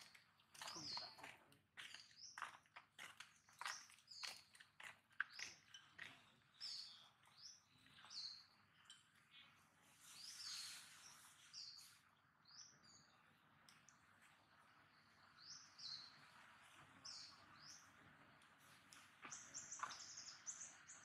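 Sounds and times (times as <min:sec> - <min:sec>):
faint bird chirps: 0:06.6 - 0:13.4.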